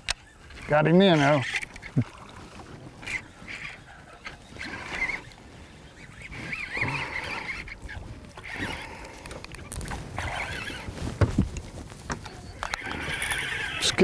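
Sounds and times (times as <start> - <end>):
bird calling: 3.0 - 10.9.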